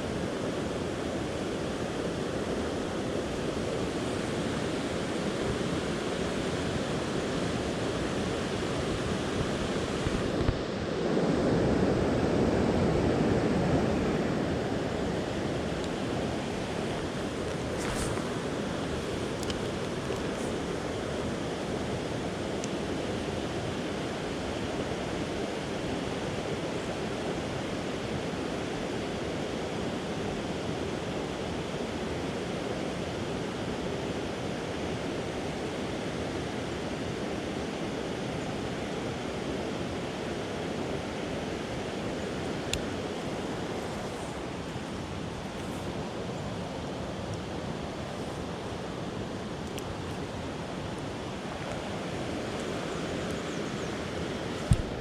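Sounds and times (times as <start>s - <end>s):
creek water rushing: 0.0s - 55.0s.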